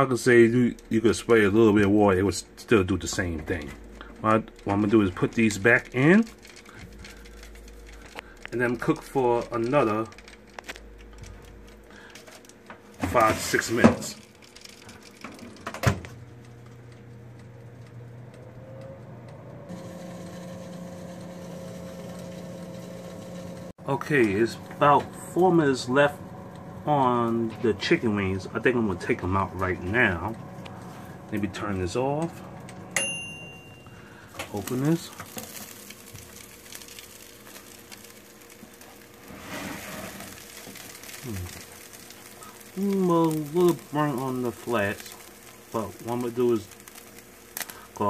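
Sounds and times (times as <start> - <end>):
chicken wings sizzling and crackling: 0.0 - 18.7, 33.8 - 48.0
convection fan humming: 0.0 - 48.0.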